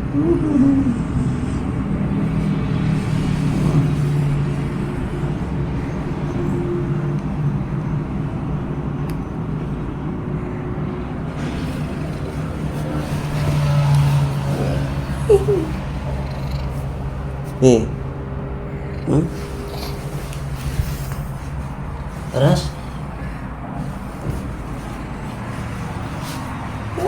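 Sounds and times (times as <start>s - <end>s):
cat purring: 2.8s - 4.6s, 11.3s - 27.0s
cat trill: 12.8s - 18.0s.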